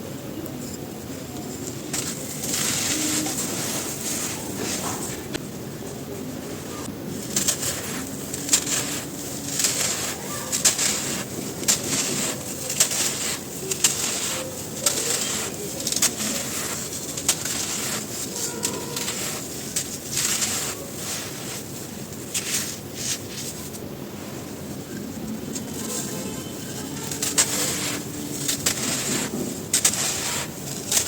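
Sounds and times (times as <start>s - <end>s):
gritty hiss: 1.1s - 31.0s
dry cylinders crumbling: 7.0s - 23.8s, 24.9s - 31.0s.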